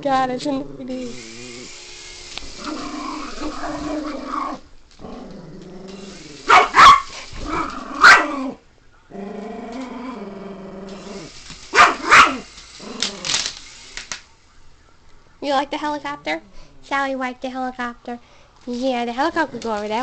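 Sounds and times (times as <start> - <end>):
dog growling: 0.3 - 1.7, 2.6 - 13.4
dog barking: 6.5 - 8.4, 11.7 - 12.5.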